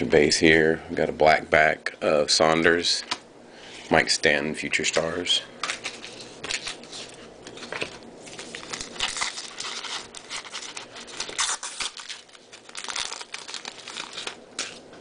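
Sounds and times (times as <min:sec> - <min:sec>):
cards being flipped by hand: 0:05.6 - 0:14.9.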